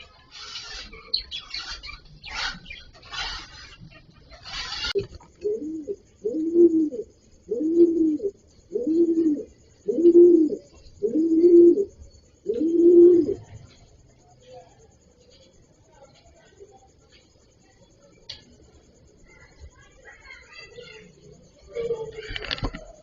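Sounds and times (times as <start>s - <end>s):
pigeon cooing: 0.0s - 13.6s.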